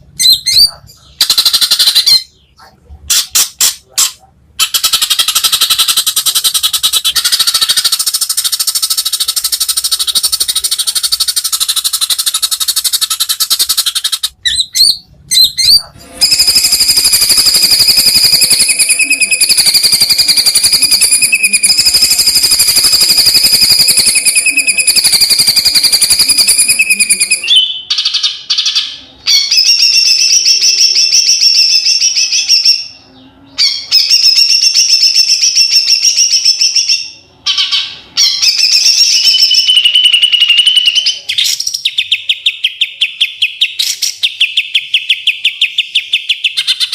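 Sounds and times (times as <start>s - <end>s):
bird singing rolling trills: 4.6s - 46.9s.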